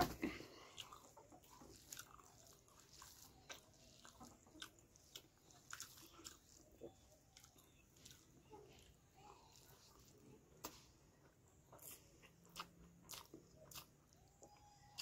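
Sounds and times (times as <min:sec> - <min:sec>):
faint chewing: 0:00.0 - 0:15.0
fingers squishing rice: 0:00.0 - 0:15.0.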